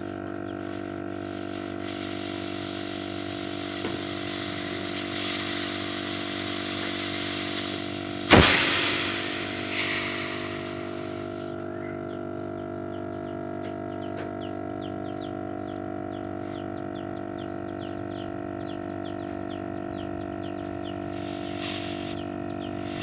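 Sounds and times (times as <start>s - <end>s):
compressed gas hissing through pipes: 0.0s - 12.0s, 20.8s - 23.0s
loud rush of escaping gas: 1.8s - 11.5s, 21.2s - 22.2s.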